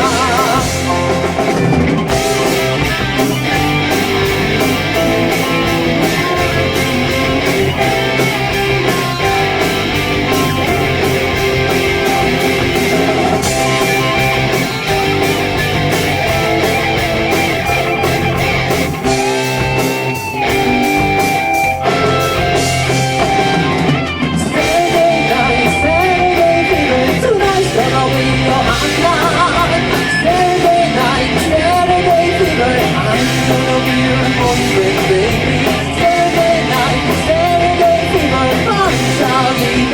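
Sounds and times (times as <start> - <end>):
person singing: 0.0 - 1.3, 24.2 - 39.9
bending lead guitar notes: 0.0 - 39.9
live rock band playing: 0.0 - 39.9.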